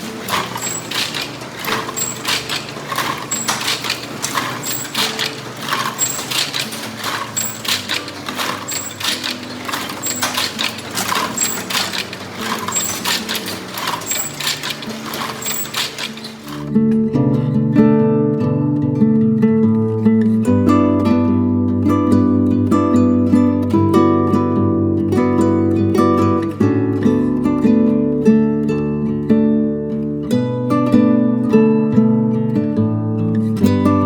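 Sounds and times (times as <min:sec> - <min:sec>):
machinery clicking and clacking: 0:00.0 - 0:16.7.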